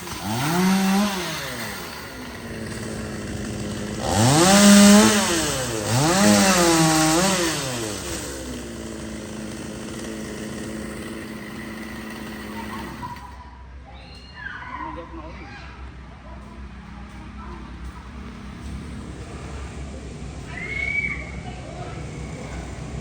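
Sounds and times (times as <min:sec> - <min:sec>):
chainsaw engine revving: 0:00.0 - 0:13.4
chainsaw idling: 0:00.0 - 0:13.4.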